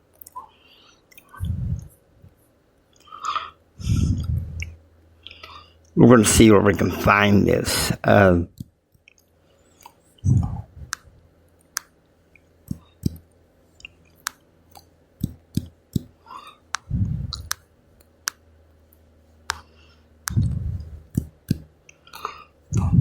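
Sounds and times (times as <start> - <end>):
steady low hum: 0.0 - 23.0
low thumps: 1.4 - 1.9, 10.2 - 11.0, 16.8 - 17.5.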